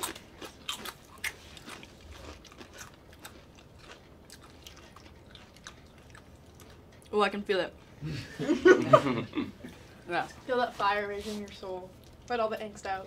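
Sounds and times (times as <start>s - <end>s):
person chewing crunchy chips: 0.0s - 7.2s.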